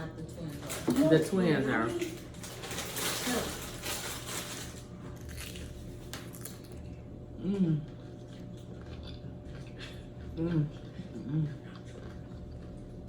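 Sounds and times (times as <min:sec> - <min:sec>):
chewing crunchy food: 0:02.0 - 0:13.0
short hummed voice: 0:07.3 - 0:08.2, 0:10.3 - 0:11.8.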